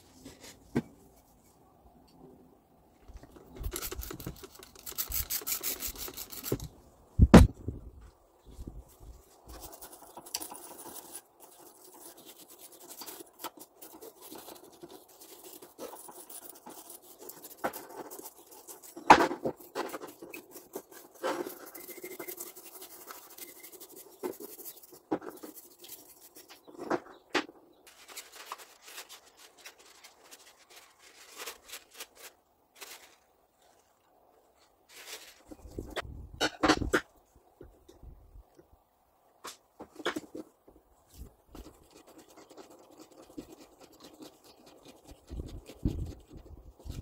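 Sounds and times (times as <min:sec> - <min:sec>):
scratching and rubbing on metal parts: 0:03.1 - 0:06.8, 0:08.5 - 0:27.3, 0:27.9 - 0:33.9, 0:39.5 - 0:47.0.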